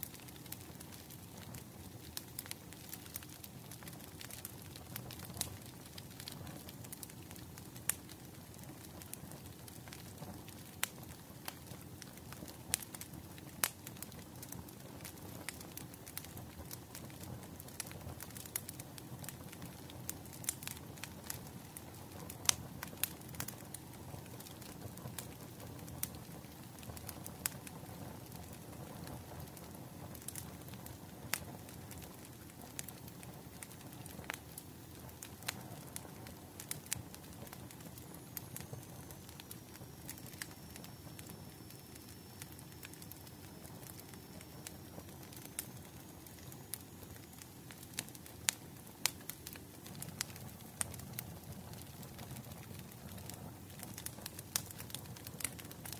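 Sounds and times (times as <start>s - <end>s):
bonfire crackling: 0.0s - 55.9s.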